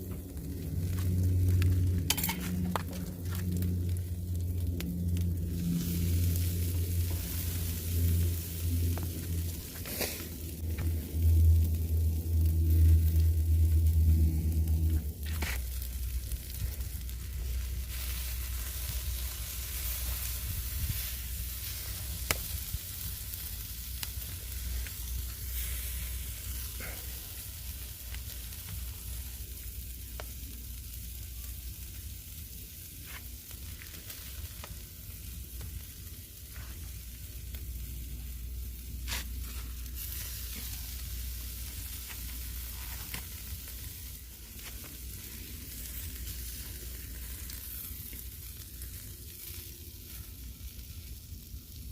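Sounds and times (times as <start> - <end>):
low rumble: 0.0 - 51.9
ribs sizzling on a grill: 0.0 - 51.9.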